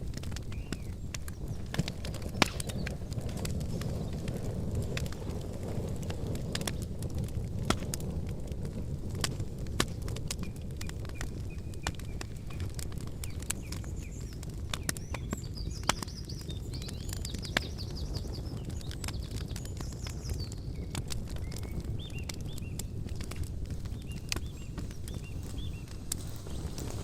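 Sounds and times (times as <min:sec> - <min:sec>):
campfire crackling and popping: 0:00.0 - 0:27.0
small bird chirping and twittering: 0:00.4 - 0:04.3, 0:10.0 - 0:27.0.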